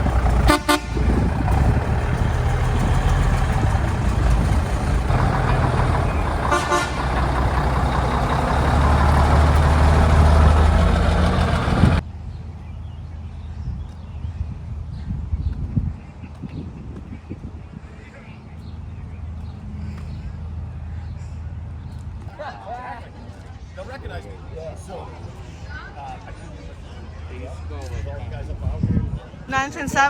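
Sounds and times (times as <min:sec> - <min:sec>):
truck horn toots: 0:00.0 - 0:02.3, 0:02.9 - 0:12.0
truck engine running: 0:00.0 - 0:12.0
outdoor background: 0:00.0 - 0:30.0.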